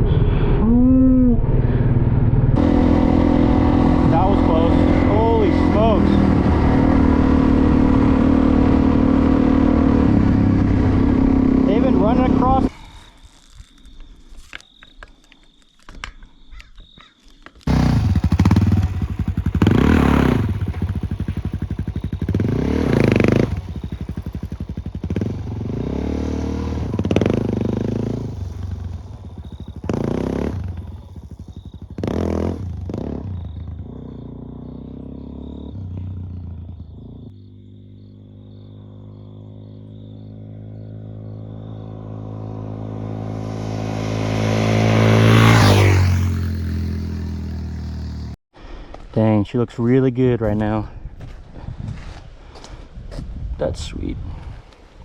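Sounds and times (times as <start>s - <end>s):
motorcycle engine revving: 0.0s - 12.7s, 17.6s - 48.4s.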